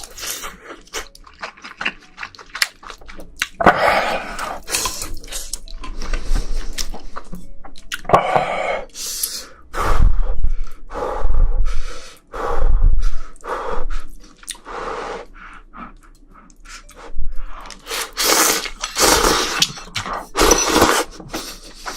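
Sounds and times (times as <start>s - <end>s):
chewing and crunching: 0.0s - 8.1s.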